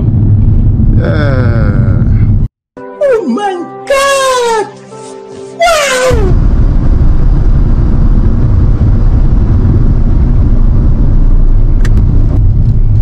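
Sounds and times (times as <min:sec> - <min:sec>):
car engine droning at cruise: 0:06.3 - 0:13.0.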